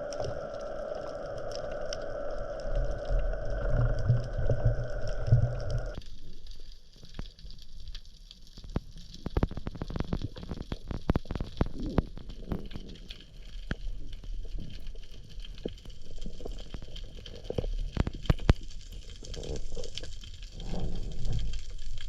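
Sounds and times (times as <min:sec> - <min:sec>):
low gurgling: 0:00.0 - 0:06.0
steady hum: 0:00.0 - 0:06.0
underwater clicks and crackles: 0:00.0 - 0:22.0.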